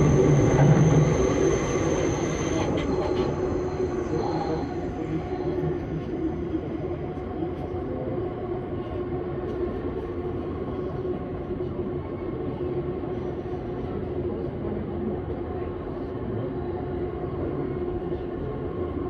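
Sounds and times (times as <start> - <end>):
train wheels rumbling on rails: 0.0 - 6.9
constant hum: 0.0 - 19.0.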